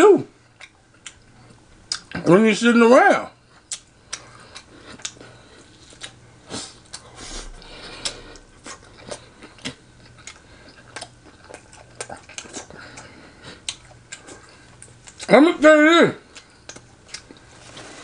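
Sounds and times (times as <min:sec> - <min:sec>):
chewing mouth clicks and smacks: 0:00.6 - 0:02.3, 0:03.6 - 0:05.2, 0:08.0 - 0:15.3, 0:16.3 - 0:17.5.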